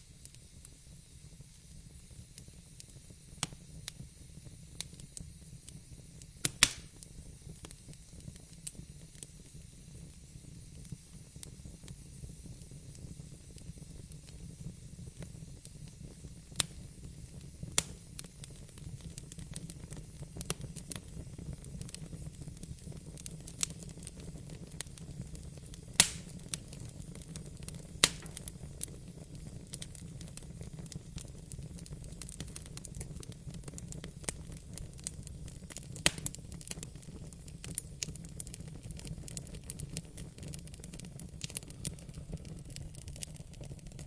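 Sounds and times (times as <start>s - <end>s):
wood fire crackling: 0.0s - 44.0s
sharp pops and snaps: 2.9s - 3.6s, 6.2s - 9.4s, 17.7s - 22.3s, 25.8s - 28.6s, 35.6s - 37.0s.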